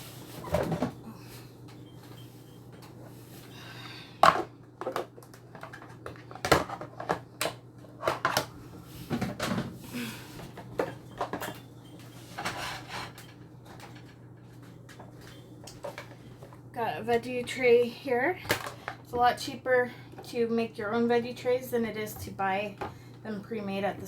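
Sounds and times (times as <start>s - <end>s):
steady low hum: 0.0s - 24.0s
dishes and utensils clattering: 10.8s - 14.0s.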